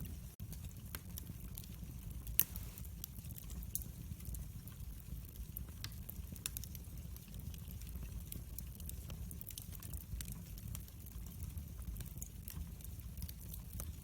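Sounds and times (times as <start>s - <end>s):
wood fire crackling: 0.0s - 14.0s
sharp fire pops: 2.2s - 3.9s.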